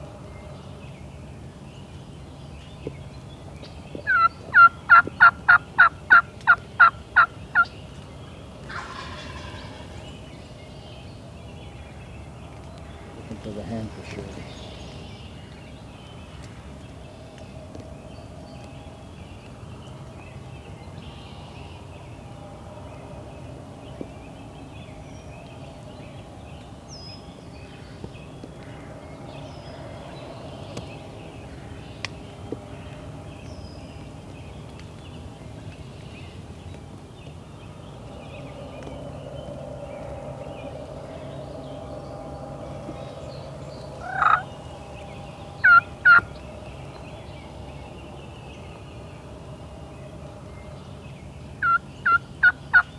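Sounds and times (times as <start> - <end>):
turkey gobbling: 4.0 - 7.7, 8.7 - 10.1, 44.0 - 44.5, 45.6 - 46.3, 51.6 - 52.9.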